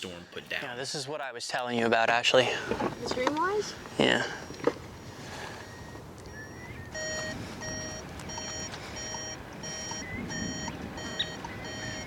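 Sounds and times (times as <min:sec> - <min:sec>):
low rumble of wind or engine: 0:02.7 - 0:12.0
electronic beep: 0:05.7 - 0:12.0.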